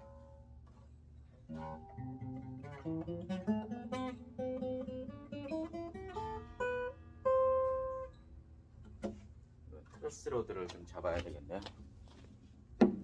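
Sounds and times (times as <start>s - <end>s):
acoustic guitar picked notes: 1.5s - 8.2s.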